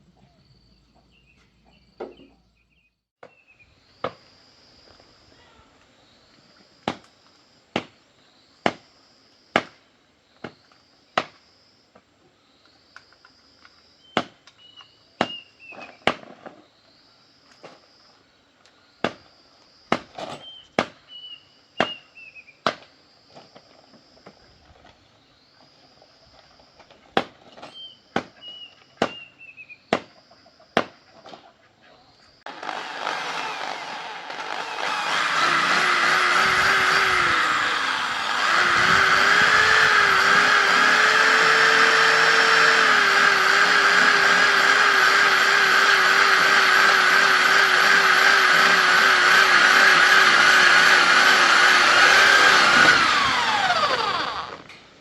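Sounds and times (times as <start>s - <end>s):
hammer driving nails: 32.5s - 54.7s.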